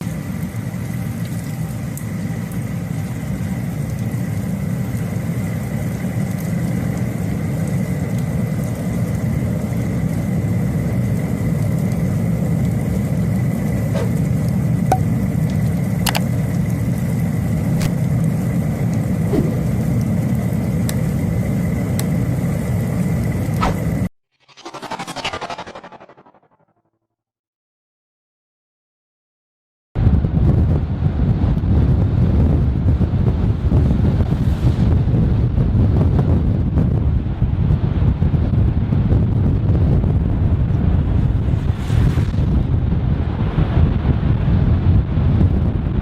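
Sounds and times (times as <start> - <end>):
low rumble: 23.6 - 26.6, 32.0 - 37.8, 40.1 - 46.0.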